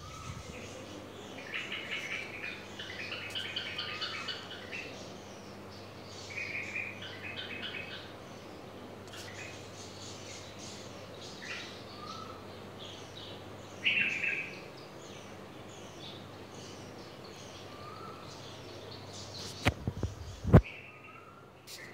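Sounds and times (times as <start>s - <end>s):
small bird chirping: 0.0s - 8.5s.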